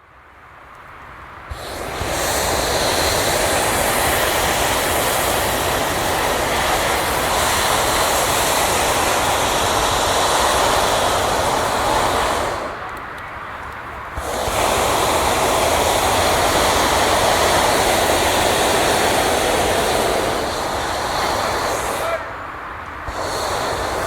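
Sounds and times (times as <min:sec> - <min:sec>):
propane burner roaring: 0:00.0 - 0:24.0.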